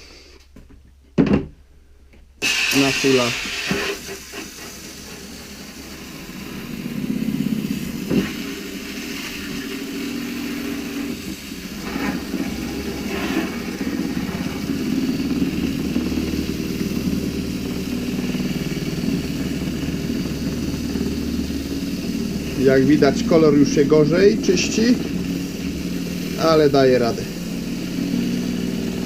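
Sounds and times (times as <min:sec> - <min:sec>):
water spraying: 0:02.4 - 0:29.0
paint roller cleaner whirring: 0:02.6 - 0:29.0.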